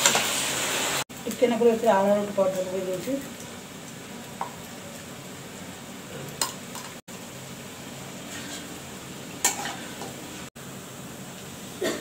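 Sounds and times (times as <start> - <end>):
batter frying in hot oil: 0.0 - 12.0.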